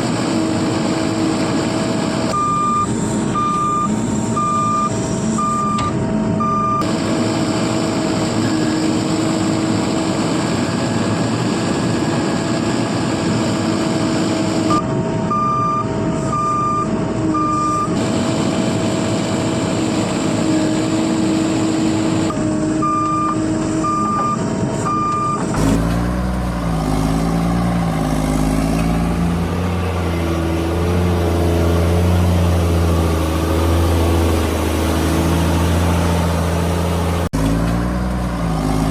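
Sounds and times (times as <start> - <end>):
vehicle engine running: 0.0 - 38.9
reversing alarm beeping: 2.3 - 6.9, 14.7 - 18.0, 22.3 - 25.5
engine revving: 17.4 - 38.9.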